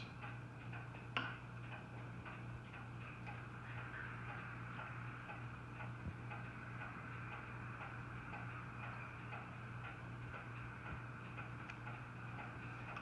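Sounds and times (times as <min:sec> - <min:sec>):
faint regular ticking: 0:00.0 - 0:13.0
low steady hum: 0:00.0 - 0:13.0.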